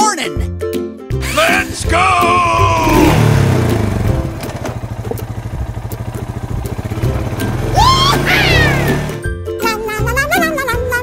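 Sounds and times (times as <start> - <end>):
vehicle engine pulsing: 1.8 - 9.2.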